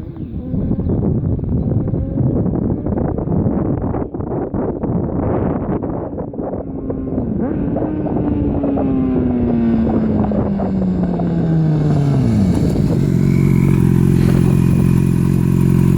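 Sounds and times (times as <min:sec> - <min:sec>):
motorcycle engine revving down: 0:06.4 - 0:15.9.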